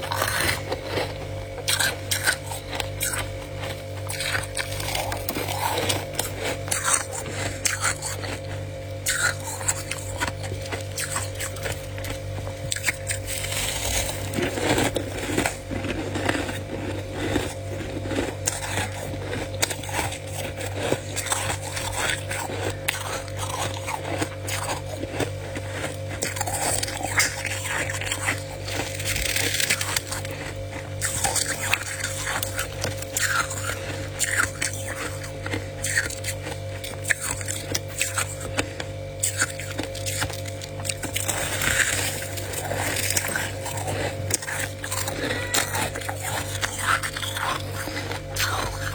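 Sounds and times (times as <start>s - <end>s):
crunching and chewing frost: 0.0s - 48.9s
low hum: 41.1s - 48.9s.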